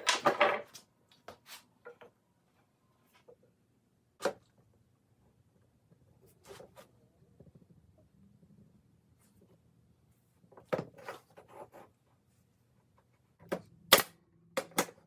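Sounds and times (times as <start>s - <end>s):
wood clattering: 0.0s - 0.8s.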